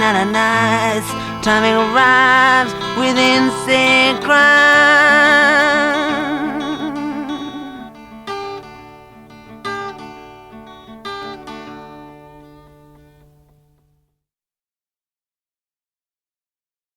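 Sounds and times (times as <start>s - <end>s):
acoustic guitar plucking: 0.0s - 14.0s
held low note: 1.9s - 8.1s.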